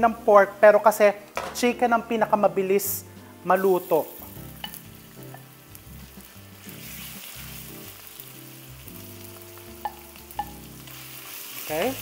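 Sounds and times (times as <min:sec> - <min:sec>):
chicken sizzling in hot oil: 0:03.6 - 0:12.0.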